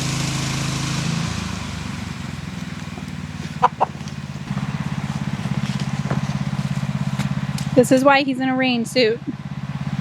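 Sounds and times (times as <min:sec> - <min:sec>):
atv engine running: 0:00.0 - 0:10.0
chicken clucking: 0:03.0 - 0:04.2.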